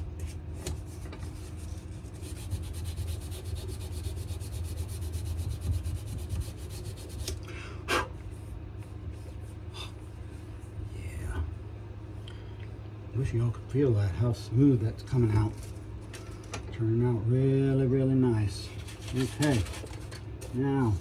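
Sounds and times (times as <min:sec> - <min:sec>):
low steady hum: 0:00.0 - 0:21.0
sandpaper rubbing wood: 0:00.8 - 0:07.3, 0:18.8 - 0:20.0.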